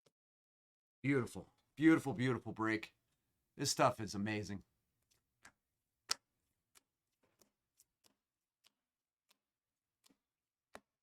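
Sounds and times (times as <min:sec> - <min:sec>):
faint clicks of cards shuffled: 0:05.0 - 0:10.9.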